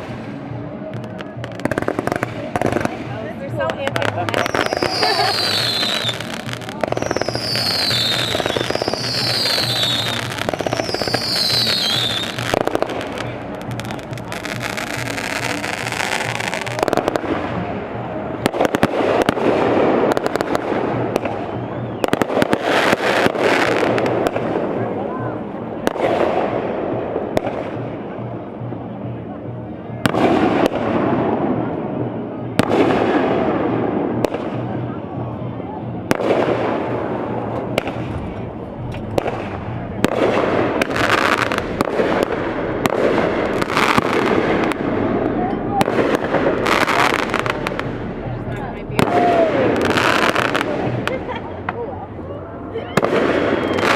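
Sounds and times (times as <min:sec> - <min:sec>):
fireworks cracking and popping: 0:00.0 - 0:24.8, 0:36.1 - 0:52.2, 0:52.8 - 0:53.9
noisy rumble of fireworks show: 0:00.0 - 0:53.9.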